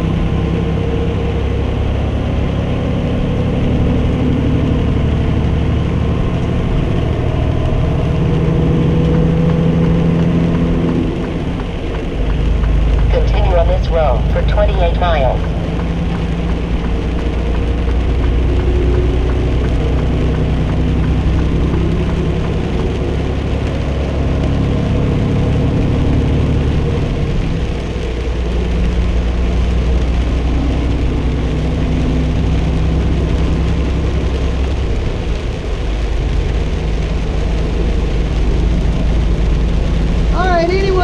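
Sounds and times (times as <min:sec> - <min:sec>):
truck diesel engine droning: 0:00.0 - 0:41.0
tyre and road noise: 0:00.0 - 0:41.0.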